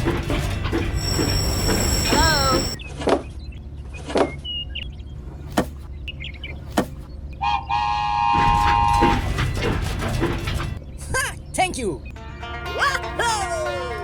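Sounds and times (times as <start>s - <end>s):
low motor hum: 0.6s - 2.8s
horn-like toot: 1.0s - 2.8s.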